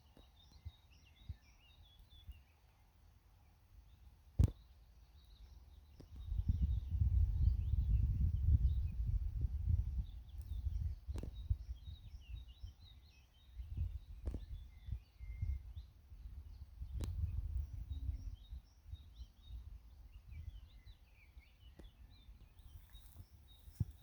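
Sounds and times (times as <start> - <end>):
small birds chirping: 0.0 - 24.0
wind on microphone: 6.1 - 12.8, 13.5 - 21.0.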